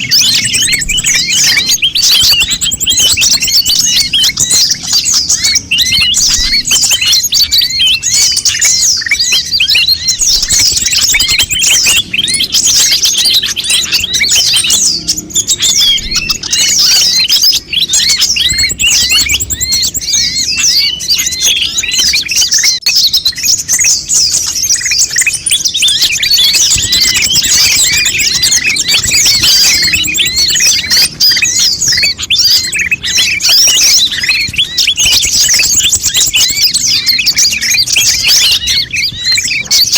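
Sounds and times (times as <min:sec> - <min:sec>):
birds chirping in chorus: 0:00.0 - 0:39.9.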